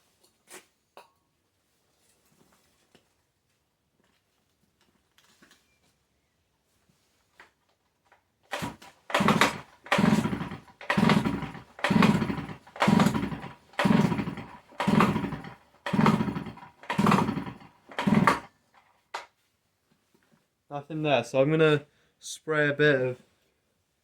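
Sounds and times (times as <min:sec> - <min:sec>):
chainsaw recoil starter whirring: 0:08.5 - 0:18.9.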